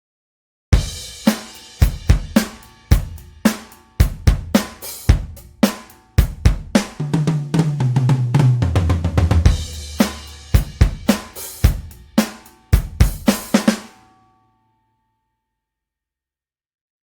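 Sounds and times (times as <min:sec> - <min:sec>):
cymbal crash: 0:00.8 - 0:07.0, 0:09.5 - 0:14.0
drum fill: 0:00.8 - 0:14.0.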